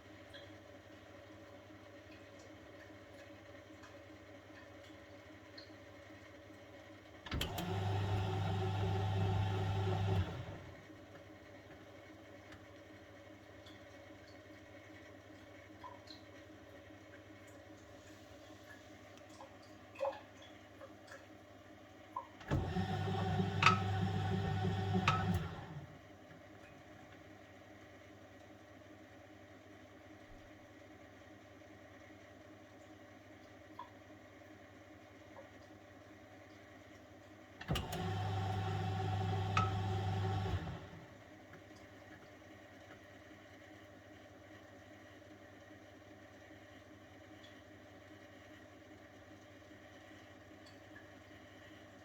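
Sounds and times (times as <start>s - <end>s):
washing machine motor hum: 7.2s - 13.4s, 22.2s - 28.3s, 37.5s - 43.8s.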